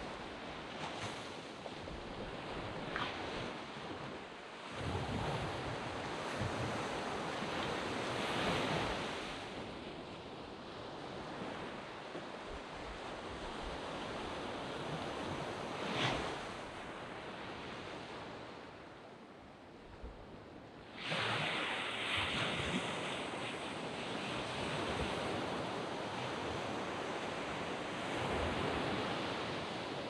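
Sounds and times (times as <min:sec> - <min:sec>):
sea waves breaking on beach: 0:00.0 - 0:10.0, 0:20.8 - 0:30.0.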